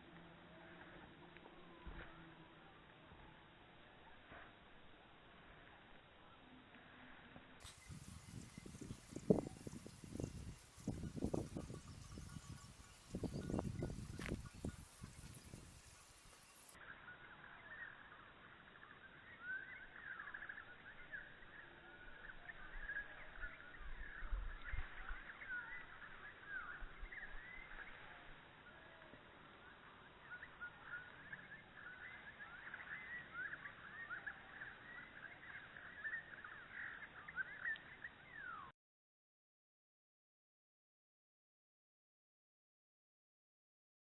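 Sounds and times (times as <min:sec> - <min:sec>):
many birds chirping: 0:07.6 - 0:38.7.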